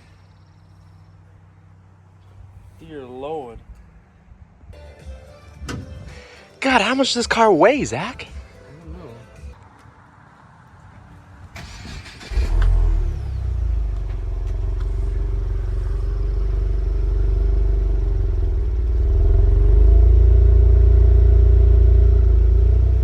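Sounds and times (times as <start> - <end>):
car engine idling: 10.4 - 23.0
car starter cranking: 11.6 - 15.6.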